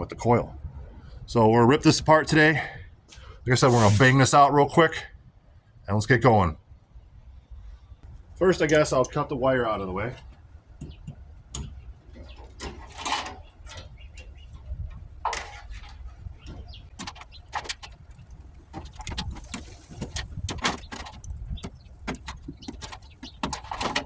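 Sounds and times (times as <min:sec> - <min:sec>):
metal scraping: 0:03.1 - 0:04.4, 0:12.1 - 0:24.0
clicks and clanks on sheet metal: 0:10.8 - 0:24.0.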